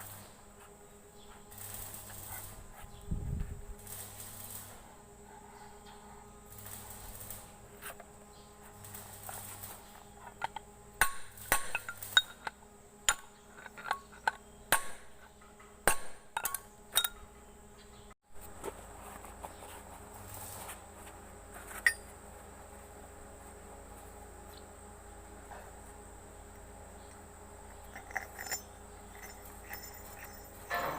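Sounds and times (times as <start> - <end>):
thin high hum: 0.0 - 30.9
metal tools clinking on metal: 8.9 - 14.5, 16.4 - 17.4, 21.7 - 22.2, 27.6 - 30.9.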